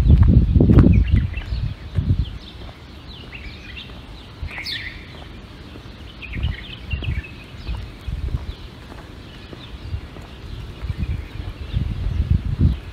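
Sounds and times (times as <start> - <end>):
songbirds chirping and twittering: 0.0 - 12.9.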